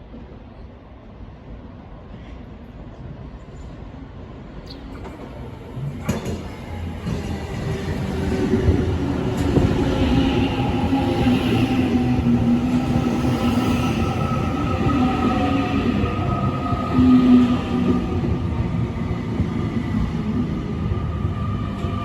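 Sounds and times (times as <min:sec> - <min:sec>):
train wheels rumbling: 0:04.9 - 0:22.0.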